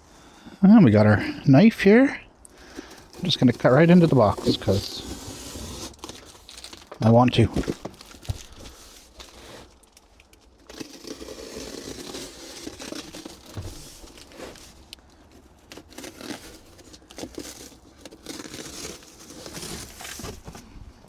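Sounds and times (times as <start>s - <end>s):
cardboard and packing crinkling: 2.4s - 21.0s
cardboard box cut with knife: 2.8s - 6.4s, 10.7s - 14.8s, 15.7s - 20.6s.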